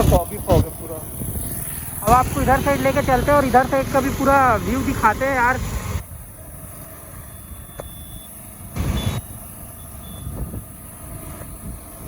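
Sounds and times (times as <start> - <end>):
road traffic rumble: 0.0 - 12.0
short high-pitched beeps: 7.3 - 10.4.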